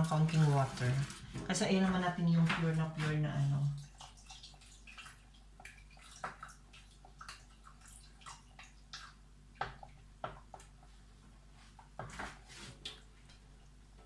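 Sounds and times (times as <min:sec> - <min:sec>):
water dripping into sauce: 0:03.8 - 0:10.9.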